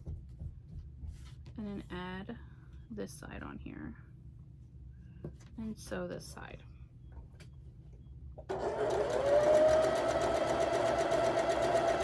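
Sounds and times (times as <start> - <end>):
electric sewing machine running: 8.5 - 12.0.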